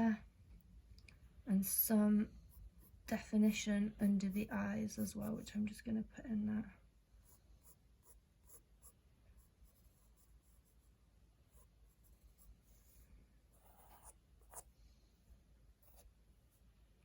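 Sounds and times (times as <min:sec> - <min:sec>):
pencil scratching on paper: 0:07.2 - 0:10.9, 0:11.5 - 0:14.7, 0:15.8 - 0:16.6.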